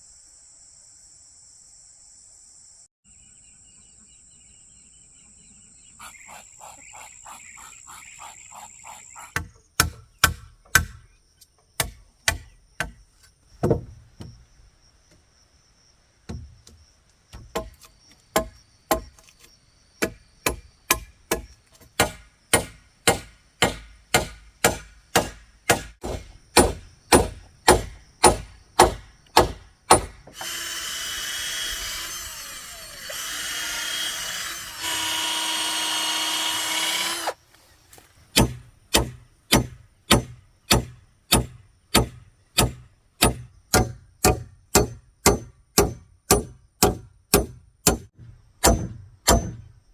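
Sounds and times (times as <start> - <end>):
strikes on wood: 9.4 - 11.0, 16.3 - 19.2, 20.0 - 30.4, 38.4 - 49.8
power tool running: 30.3 - 37.4.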